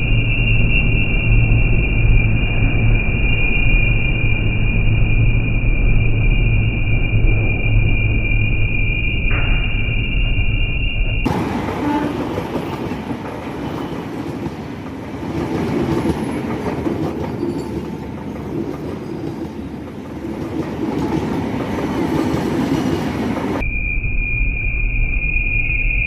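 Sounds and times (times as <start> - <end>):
steady high-pitched tone: 0.0 - 12.0, 23.5 - 26.0
train rumbling past: 11.2 - 23.7
wheels clacking over rail joints: 11.3 - 23.6.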